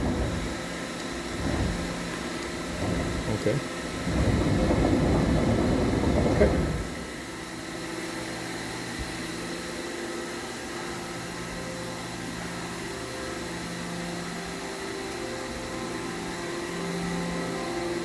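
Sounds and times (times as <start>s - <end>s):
steady machine tones: 0.0s - 7.9s
machine hum: 0.0s - 9.2s
mechanical hiss: 0.0s - 9.8s.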